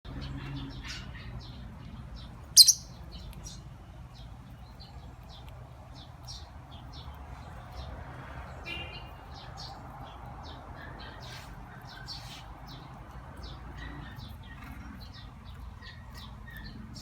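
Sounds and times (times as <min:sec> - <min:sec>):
lovebird chirping: 0:02.5 - 0:03.6.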